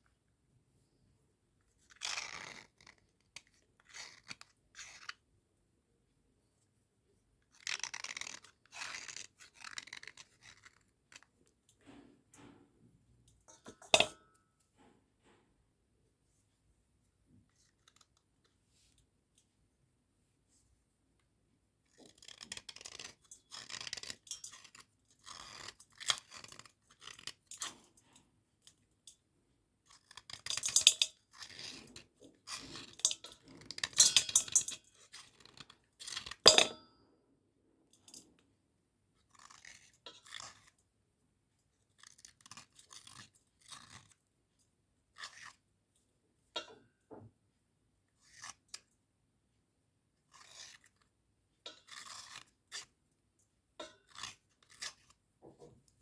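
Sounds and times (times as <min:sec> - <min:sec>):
slate pencils crunching and scraping: 0:51.8 - 0:52.9.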